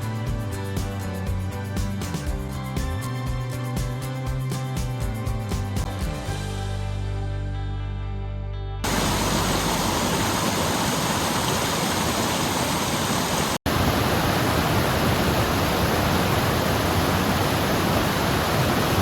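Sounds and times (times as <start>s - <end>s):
running water rushing: 8.9s - 19.0s.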